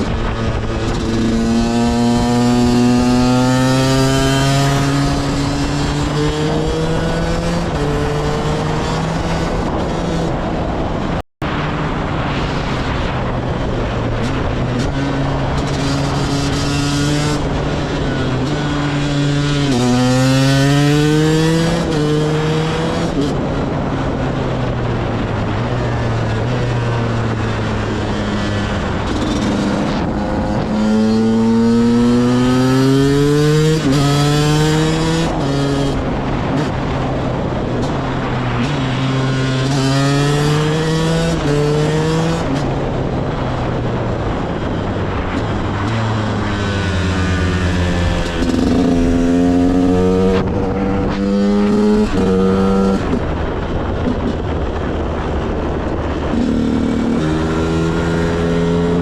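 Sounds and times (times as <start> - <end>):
two-stroke engine accelerating: 24.1 - 59.0.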